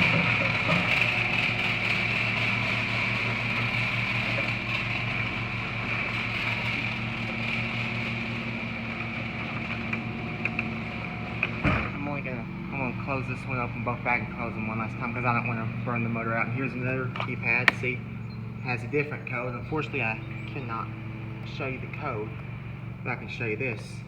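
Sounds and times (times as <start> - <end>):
garage door opener motor humming: 0.0 - 24.0
garage door clunk: 9.4 - 12.0.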